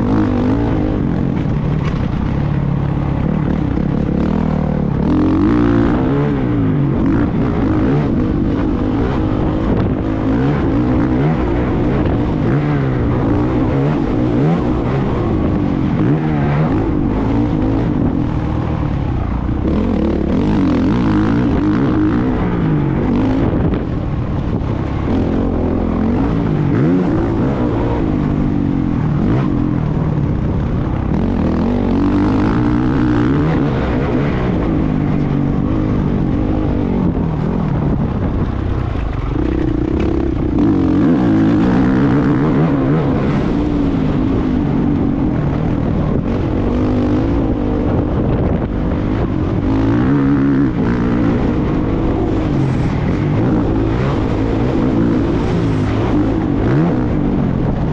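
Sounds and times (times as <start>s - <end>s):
motocross motorcycle engine revving: 0.0s - 57.9s.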